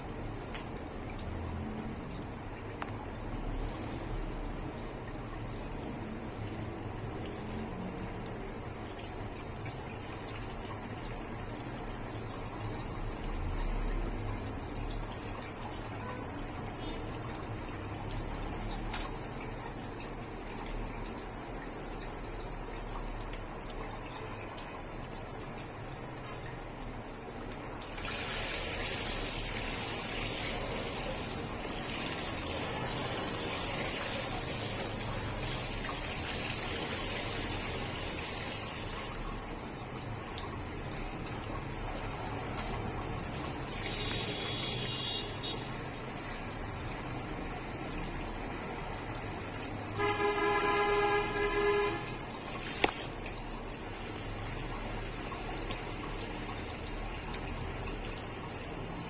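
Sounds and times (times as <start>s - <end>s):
water pouring: 0.0s - 59.0s
vehicle horn: 43.8s - 45.7s, 50.0s - 52.3s.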